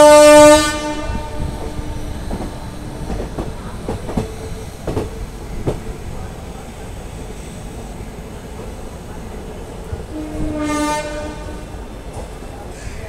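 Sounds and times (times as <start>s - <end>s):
train horn blaring: 0.0s - 3.2s, 10.1s - 11.8s
train running noise: 0.0s - 13.0s
wheels clacking over rail joints: 1.6s - 6.8s.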